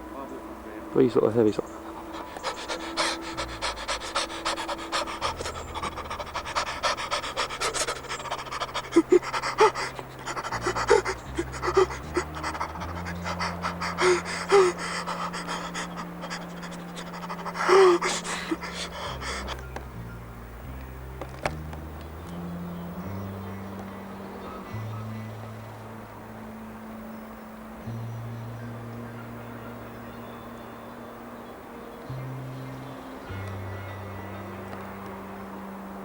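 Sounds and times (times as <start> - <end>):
low sustained background notes: 0.0 - 36.0
rapid rhythmic panting: 1.0 - 25.3.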